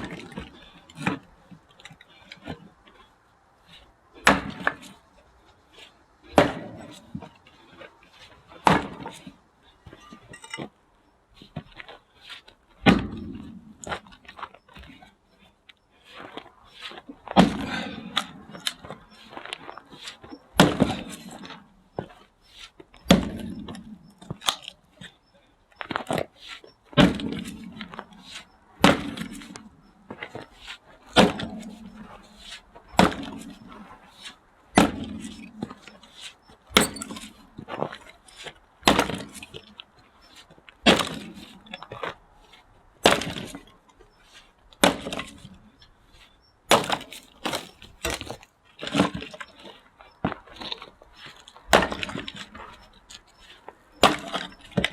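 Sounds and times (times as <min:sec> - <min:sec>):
axe splitting firewood: 0:04.2 - 0:04.9, 0:06.2 - 0:07.2, 0:08.5 - 0:09.3, 0:16.9 - 0:22.2, 0:23.0 - 0:25.1, 0:26.9 - 0:33.6, 0:34.2 - 0:39.6, 0:40.8 - 0:42.1, 0:43.0 - 0:43.7, 0:44.4 - 0:45.6, 0:46.7 - 0:52.8, 0:53.5 - 0:54.9.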